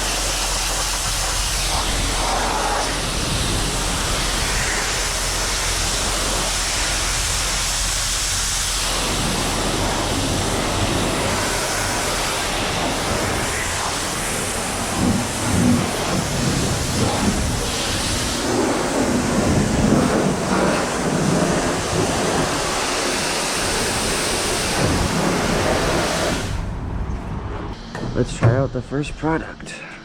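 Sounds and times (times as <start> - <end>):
high-pressure water spray hissing: 0.0 - 26.6
low thumps: 26.6 - 28.8.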